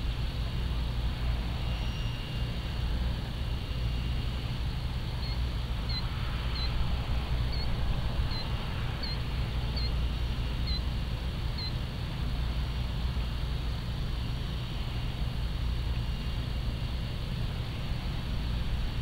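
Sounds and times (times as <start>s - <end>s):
steady low rumble: 0.0s - 19.0s
small bird chirping: 4.7s - 6.8s, 7.4s - 10.0s, 10.6s - 10.9s, 11.5s - 11.8s.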